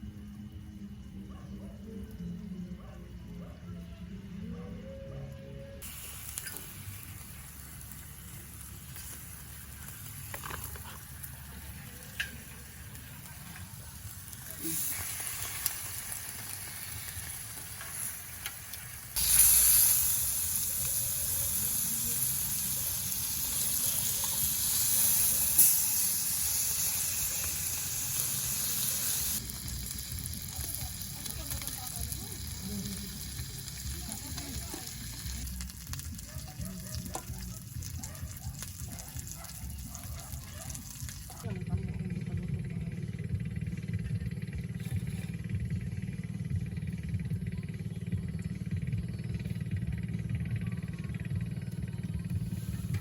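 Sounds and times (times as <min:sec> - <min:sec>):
food sizzling in a pan: 0:05.8 - 0:41.4.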